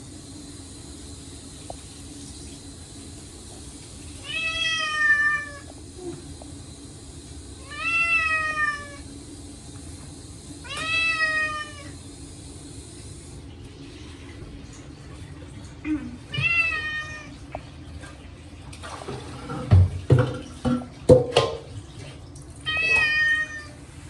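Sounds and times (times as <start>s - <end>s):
cat meowing loudly: 4.2s - 5.7s, 7.6s - 9.0s, 10.6s - 12.0s, 16.3s - 17.3s, 22.7s - 23.8s.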